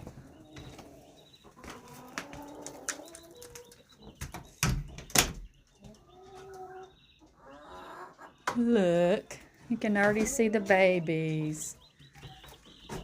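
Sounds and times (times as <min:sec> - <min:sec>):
hen and chicks calling softly: 0:00.0 - 0:13.0.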